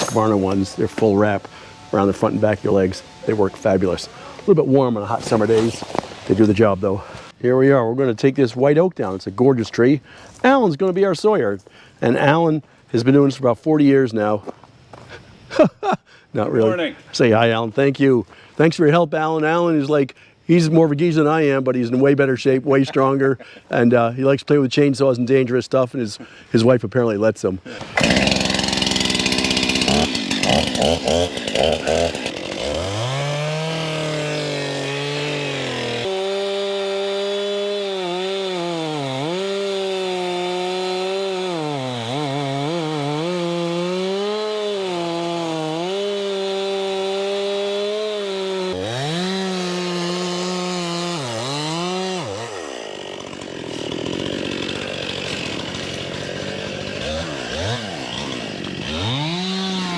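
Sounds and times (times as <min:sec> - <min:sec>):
chainsaw cutting wood: 0:00.0 - 0:06.6, 0:27.7 - 0:59.9.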